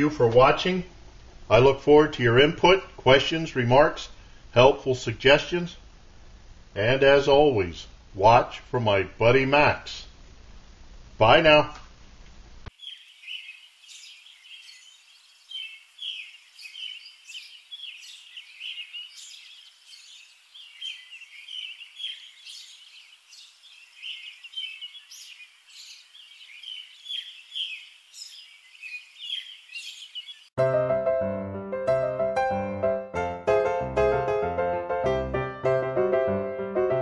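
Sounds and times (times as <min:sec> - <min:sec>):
small birds chirping: 0:12.7 - 0:30.6
piano music: 0:30.6 - 0:37.0.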